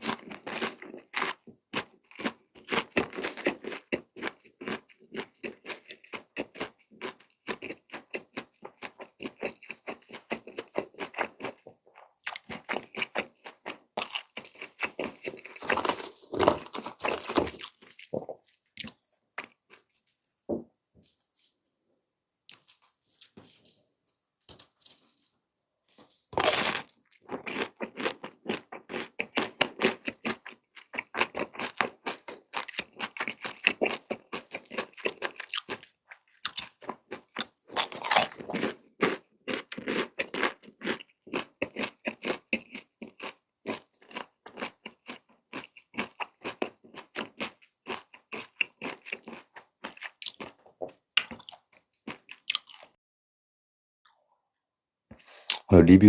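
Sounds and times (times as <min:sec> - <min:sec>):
chewing crunchy food: 0:00.0 - 0:21.6, 0:22.5 - 0:23.9, 0:25.9 - 0:53.0, 0:55.1 - 0:55.7
loud crunching bite: 0:12.2 - 0:18.1, 0:26.0 - 0:50.6, 0:51.2 - 0:52.9, 0:55.3 - 0:55.7.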